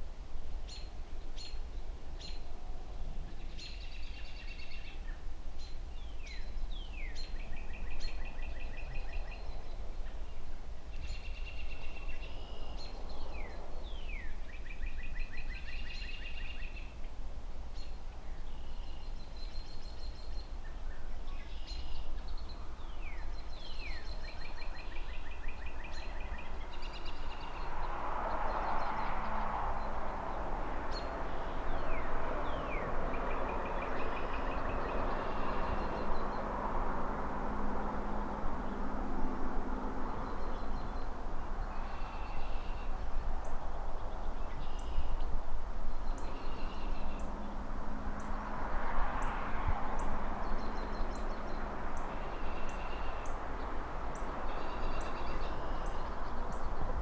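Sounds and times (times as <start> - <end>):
distant city traffic: 21.4 - 57.0.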